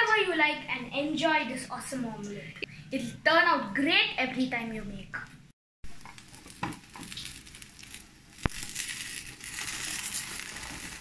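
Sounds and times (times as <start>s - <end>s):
omelette sizzling in a pan: 5.9s - 11.0s.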